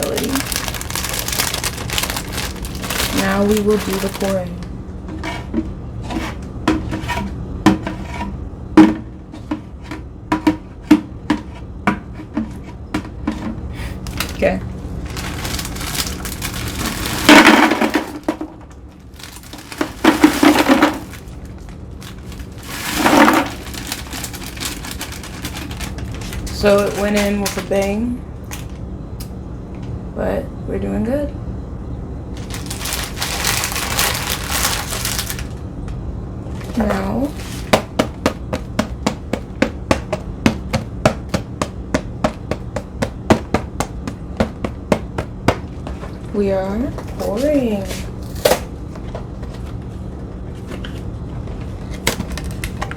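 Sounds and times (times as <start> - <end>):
cookies clattering into container: 0.0 - 4.6, 12.9 - 28.7, 32.4 - 35.6, 36.6 - 41.5.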